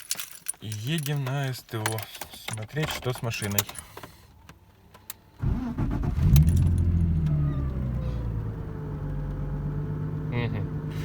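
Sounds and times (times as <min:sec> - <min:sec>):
car engine starting and idling: 0:03.6 - 0:11.0.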